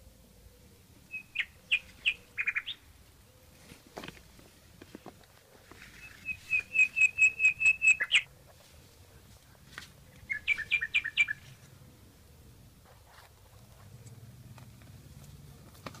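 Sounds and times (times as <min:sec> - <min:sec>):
small songbird singing: 0:00.4 - 0:03.3, 0:05.9 - 0:08.3, 0:10.1 - 0:11.6.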